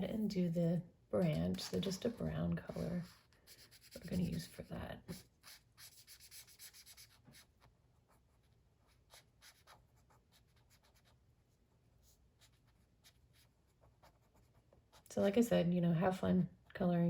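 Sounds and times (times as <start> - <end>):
colouring tool scratching paper: 1.5 - 11.2.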